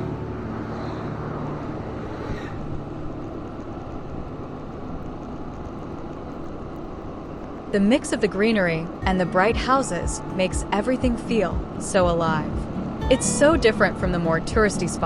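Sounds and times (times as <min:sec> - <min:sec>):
bike road noise: 0:00.0 - 0:15.0
faint background music: 0:07.7 - 0:15.0.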